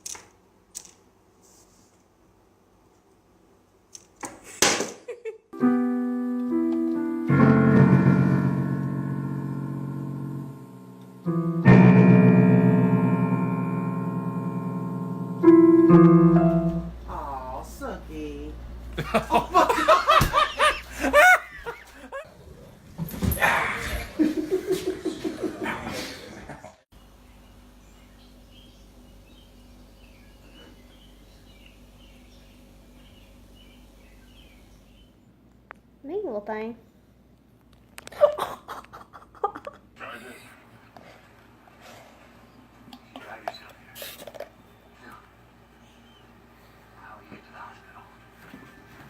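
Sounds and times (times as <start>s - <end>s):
piano notes ringing: 5.6s - 18.7s.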